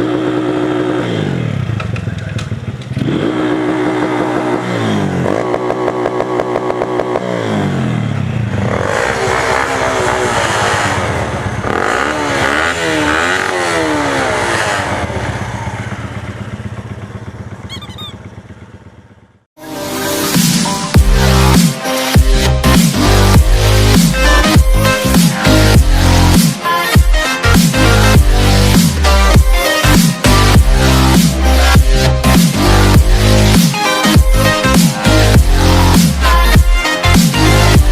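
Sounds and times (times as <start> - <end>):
motorcycle engines accelerating: 0.0 - 19.4.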